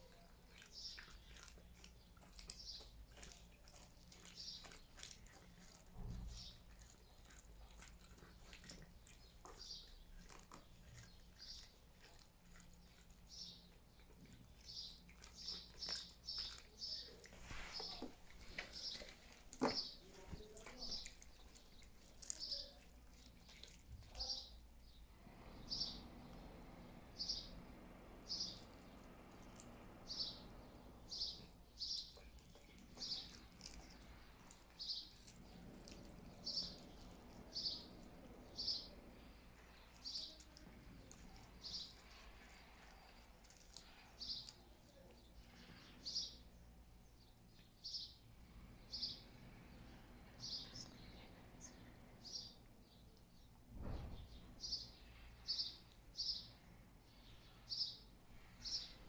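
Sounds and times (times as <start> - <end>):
bird chirping: 14.6 - 22.8, 24.1 - 48.2, 48.8 - 59.0.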